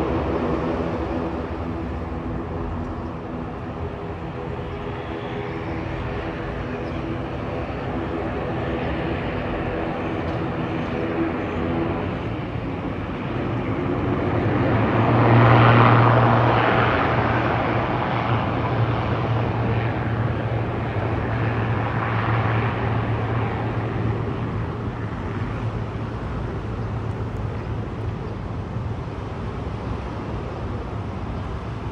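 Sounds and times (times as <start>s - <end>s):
turboprop propeller drone: 0.0s - 31.9s.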